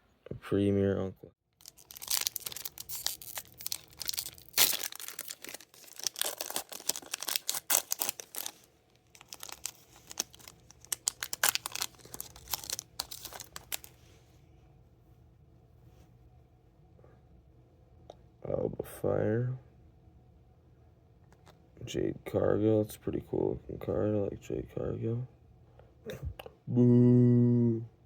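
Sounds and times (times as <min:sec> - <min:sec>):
wrapper crinkling: 0:01.6 - 0:14.0
wrapper ripping: 0:01.6 - 0:14.0.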